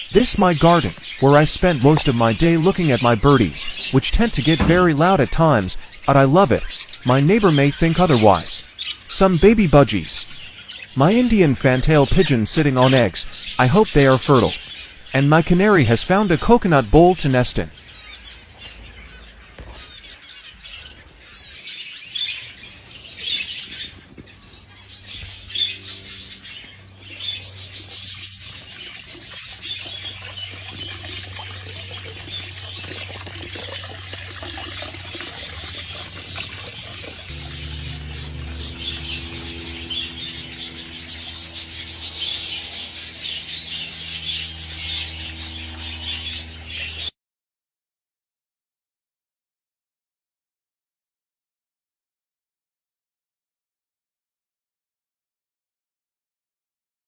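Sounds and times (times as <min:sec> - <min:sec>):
caged birds chirping: 0:00.0 - 0:47.1
steady low hum: 0:35.7 - 0:47.1.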